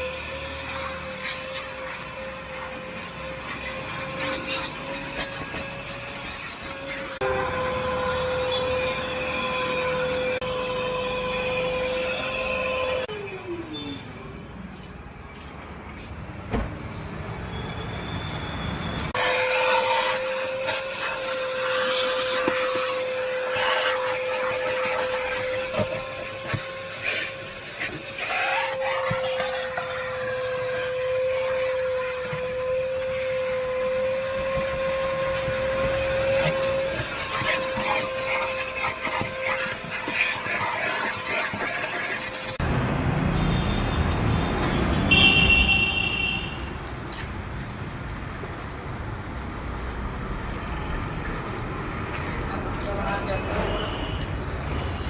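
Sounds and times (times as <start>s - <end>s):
pressure washer water jet hiss: 0.0s - 7.3s, 19.2s - 42.6s
pressure washer motor whine: 0.0s - 14.3s, 19.1s - 42.8s.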